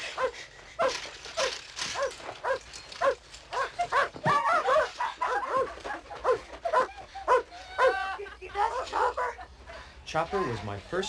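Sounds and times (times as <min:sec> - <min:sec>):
dog barking: 0:02.0 - 0:08.0.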